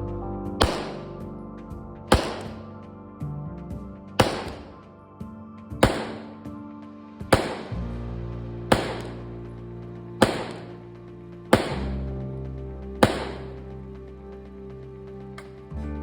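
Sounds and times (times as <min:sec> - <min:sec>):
background music with sustained chords: 0:00.0 - 0:16.0
sharp bang with decaying tail: 0:00.6 - 0:01.2, 0:02.1 - 0:02.8, 0:04.2 - 0:04.8, 0:05.8 - 0:06.4, 0:07.4 - 0:08.0, 0:08.7 - 0:09.3, 0:10.2 - 0:10.8, 0:11.6 - 0:12.1, 0:13.0 - 0:13.6.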